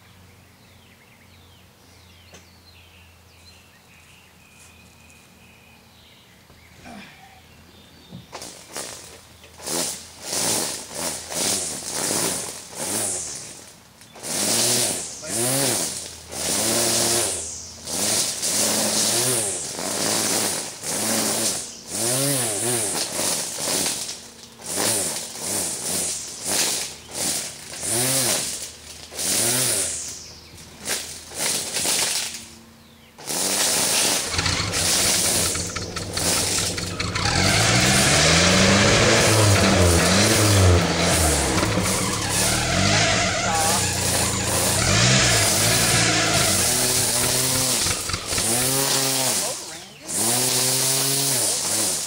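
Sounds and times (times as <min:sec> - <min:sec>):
car engine revving: 0:14.2 - 0:24.0, 0:33.5 - 0:52.0
car engine cranking: 0:33.6 - 0:51.0.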